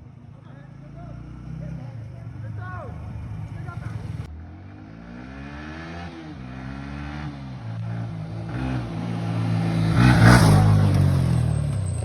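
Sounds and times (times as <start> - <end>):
motorcycle engine accelerating: 0.7 - 12.0.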